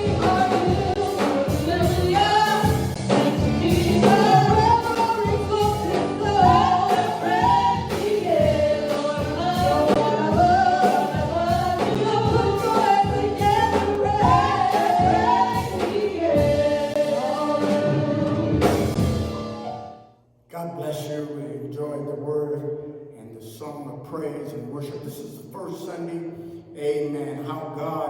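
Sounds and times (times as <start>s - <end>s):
steady drum beat: 0.0s - 19.8s
choir singing gospel: 0.0s - 19.9s
band accompaniment: 0.0s - 20.0s.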